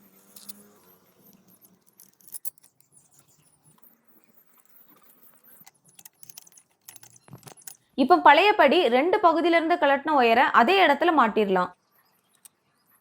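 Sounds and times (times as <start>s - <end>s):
metal parts clicking and scraping: 0.2s - 7.9s.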